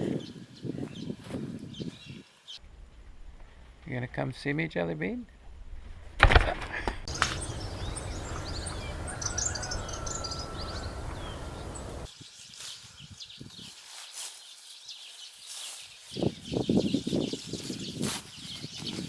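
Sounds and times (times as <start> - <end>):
wind rumble on microphone: 0.0 - 2.3, 7.1 - 12.2, 16.2 - 19.0
birds chirping: 0.0 - 2.6, 7.1 - 13.5.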